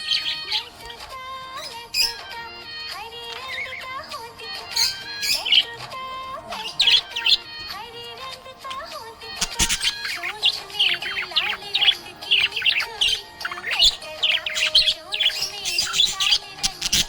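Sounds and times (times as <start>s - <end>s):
budgerigars chirping: 0.0s - 0.8s, 1.5s - 2.4s, 3.3s - 5.8s, 6.5s - 7.7s, 9.3s - 17.0s.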